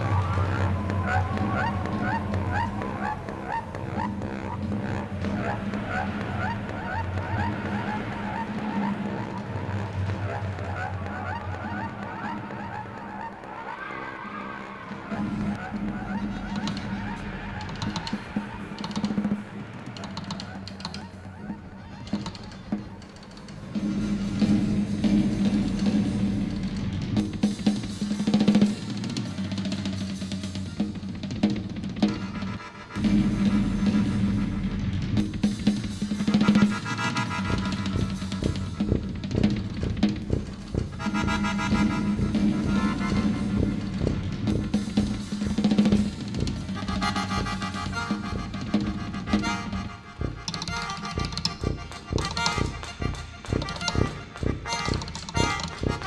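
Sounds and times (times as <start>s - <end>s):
drum kit playing: 0.0s - 13.7s, 15.2s - 56.0s
higher sustained chords: 0.0s - 22.2s
jazz ensemble music: 0.0s - 56.0s.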